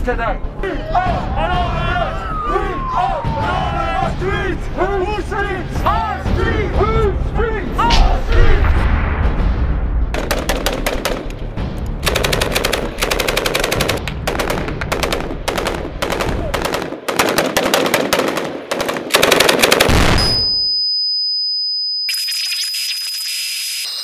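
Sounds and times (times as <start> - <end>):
automatic rifle fire: 12.0 - 20.4.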